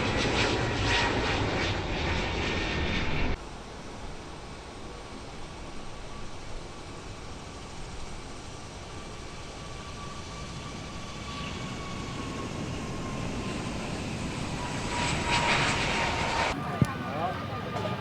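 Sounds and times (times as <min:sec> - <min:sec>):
jet engines rushing and whining: 0:00.0 - 0:18.0.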